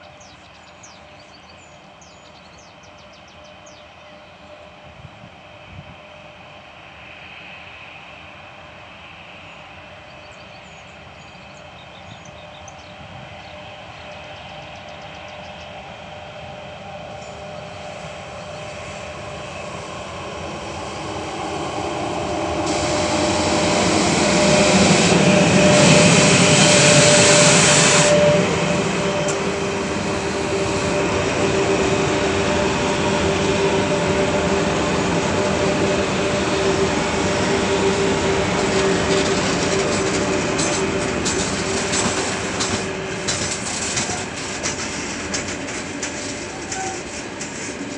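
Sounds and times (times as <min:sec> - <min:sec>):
train wheels rumbling: 0:00.0 - 0:47.9
locomotive hiss: 0:03.4 - 0:47.9
locomotive whine dropping in pitch: 0:17.1 - 0:47.2.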